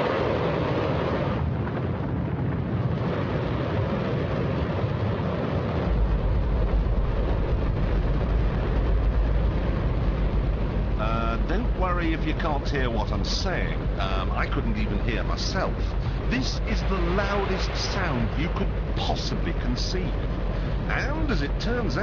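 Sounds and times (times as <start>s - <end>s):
rocket engine roaring: 0.0s - 22.0s.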